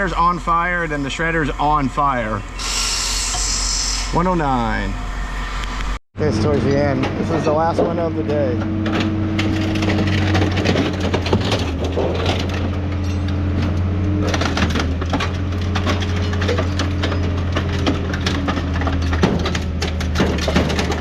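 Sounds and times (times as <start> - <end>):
engine and hydraulic hum: 0.0 - 21.0
scrap metal crunching: 6.4 - 21.0.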